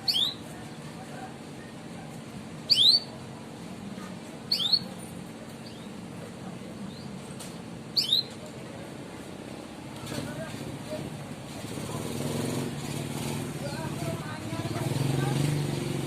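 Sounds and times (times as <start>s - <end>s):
canary chirping call: 0.0s - 0.5s, 2.6s - 3.2s, 4.5s - 5.0s, 5.6s - 6.0s, 7.9s - 8.4s.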